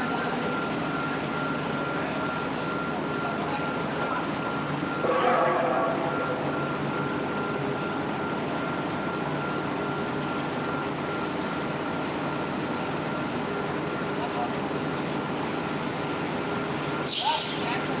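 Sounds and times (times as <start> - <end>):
heavy diesel engine running: 0.0 - 18.0
high whine: 0.1 - 11.3.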